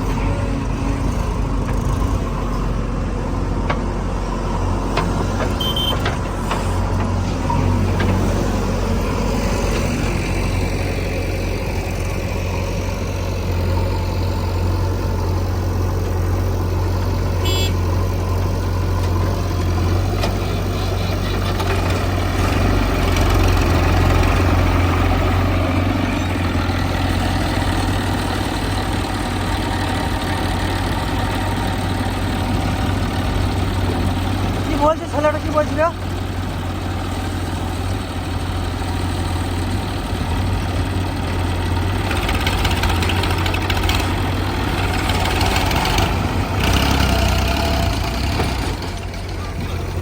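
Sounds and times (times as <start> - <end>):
heavy diesel engines idling: 0.0 - 50.0
high beeps: 5.6 - 6.0.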